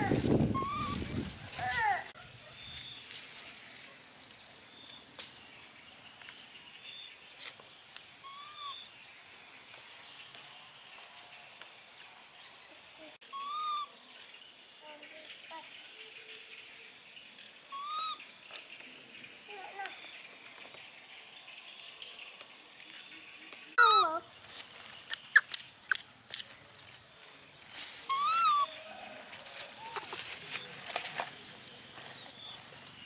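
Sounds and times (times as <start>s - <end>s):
bird rising-and-falling call: 0.5s - 1.0s.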